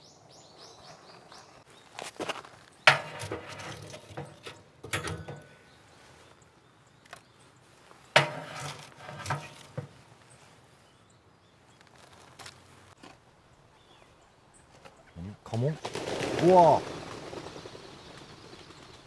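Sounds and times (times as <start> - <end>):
clicks and knocks: 2.9 - 5.7, 8.2 - 10.0
short ringing: 2.9 - 5.8.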